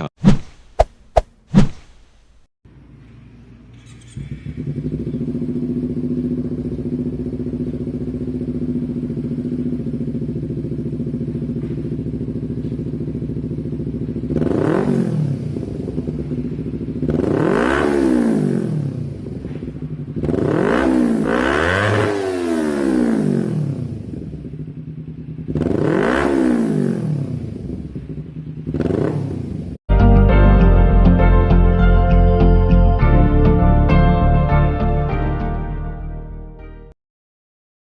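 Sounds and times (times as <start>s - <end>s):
motorcycle engine idling and revving: 2.7s - 29.9s.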